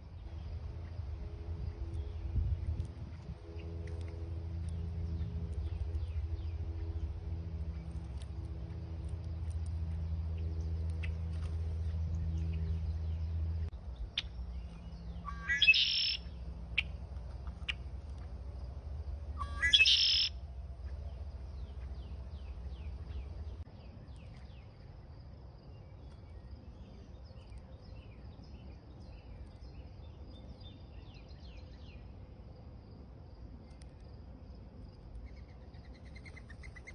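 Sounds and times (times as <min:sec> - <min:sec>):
birds chirping: 0:00.0 - 0:25.0
low steady hum: 0:00.0 - 0:36.9
loud upward-sweeping bird calls: 0:15.2 - 0:16.9, 0:19.4 - 0:20.4.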